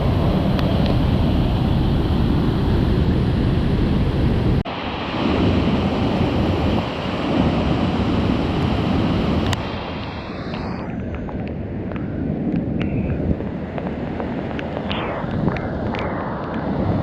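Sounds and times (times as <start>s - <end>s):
waterfall roaring: 0.0s - 12.1s
wind buffeting microphone: 0.0s - 17.0s.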